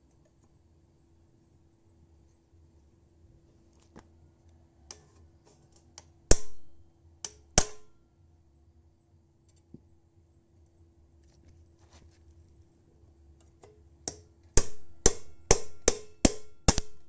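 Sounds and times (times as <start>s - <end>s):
hammer striking metal: 6.3s - 8.0s, 14.6s - 17.0s.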